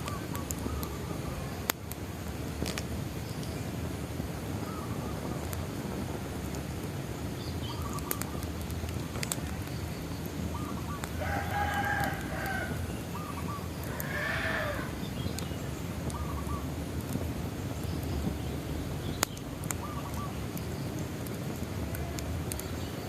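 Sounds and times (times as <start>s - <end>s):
wood fire crackling and popping: 0.0s - 23.0s
rooster crowing: 11.2s - 12.9s, 13.8s - 15.0s.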